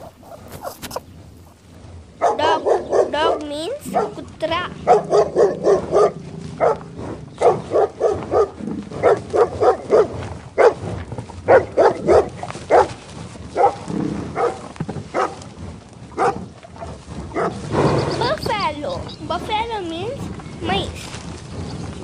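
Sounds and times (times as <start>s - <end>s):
dog barking: 0.0s - 1.6s, 2.2s - 10.8s, 11.5s - 13.0s, 13.6s - 13.8s, 14.4s - 15.4s, 16.2s - 16.4s, 17.3s - 17.6s.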